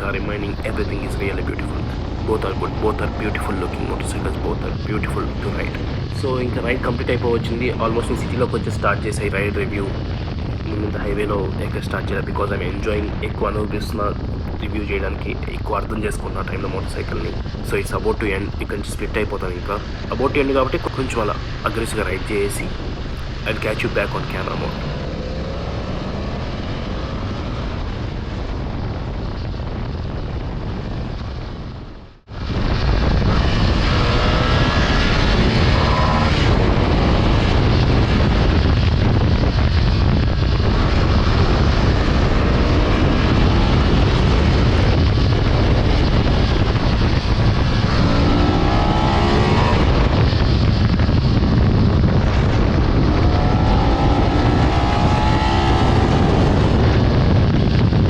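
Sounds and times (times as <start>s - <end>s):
wind noise: 0.0s - 58.0s
motorcycle engine accelerating: 20.8s - 58.0s.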